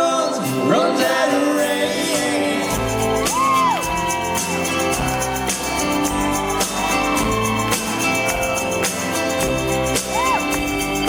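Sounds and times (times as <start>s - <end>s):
bass guitar: 0.0s - 11.0s
drums keeping a steady beat: 2.6s - 11.0s.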